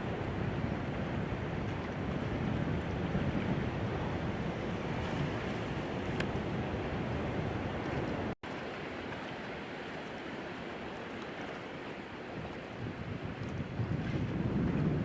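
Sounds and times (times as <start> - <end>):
wind on the microphone: 0.0 - 8.4, 12.2 - 15.0.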